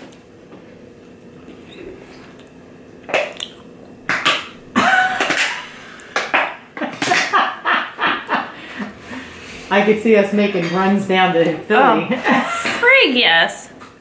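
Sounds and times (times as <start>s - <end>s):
person chewing and lip-smacking: 1.4s - 4.6s.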